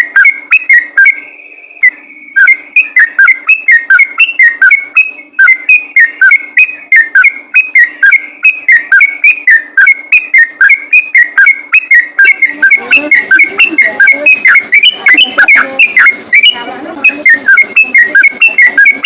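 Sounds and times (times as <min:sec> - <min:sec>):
bulbul singing whistled notes: 0:00.0 - 0:19.0.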